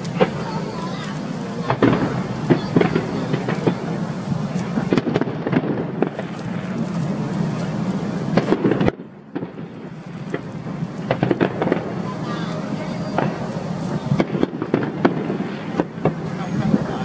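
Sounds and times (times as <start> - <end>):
continuous rumble: 0.0 - 17.0
fireworks bangs and crackles: 0.0 - 17.0.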